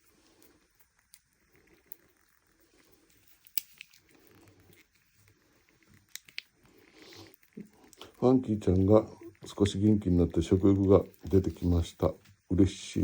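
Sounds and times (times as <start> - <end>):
small sharp clicks: 3.4 - 4.1, 5.8 - 6.6.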